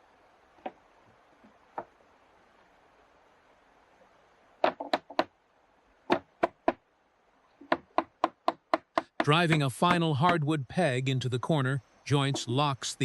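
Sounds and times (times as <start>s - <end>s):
wooden mallet knocking timber: 4.6s - 5.3s, 6.1s - 6.8s, 7.6s - 10.4s.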